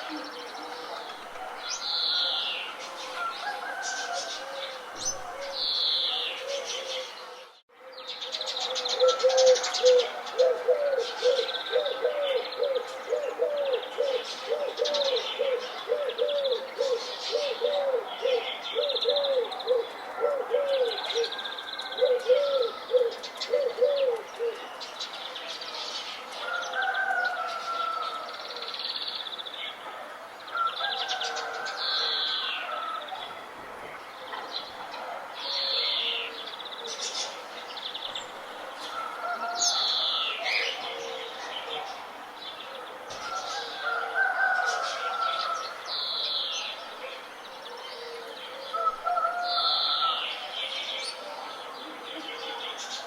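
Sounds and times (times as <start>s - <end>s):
low cooing bird call: 0.0s - 24.9s, 34.2s - 37.9s, 38.8s - 46.7s, 47.6s - 53.0s
songbirds chirping and trilling: 0.0s - 53.0s.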